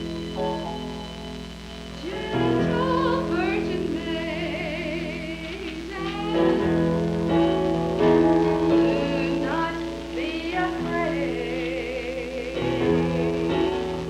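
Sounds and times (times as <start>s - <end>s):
sustained keyboard chords: 0.0s - 14.0s
high voice singing with vibrato: 2.0s - 7.3s, 8.1s - 14.0s.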